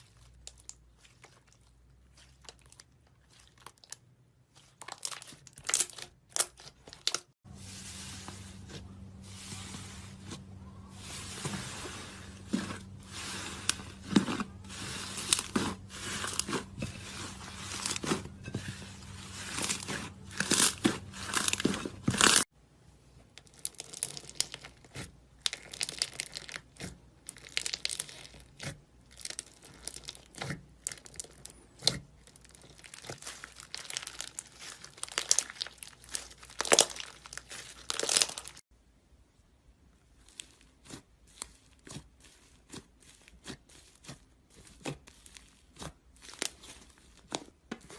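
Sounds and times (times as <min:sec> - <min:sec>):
slime crackling and popping: 0:19.2 - 0:22.4, 0:23.4 - 0:38.6.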